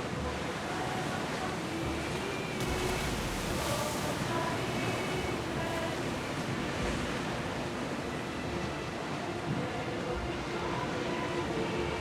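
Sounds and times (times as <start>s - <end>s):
sea waves: 0.0s - 12.0s
wind: 0.0s - 12.0s.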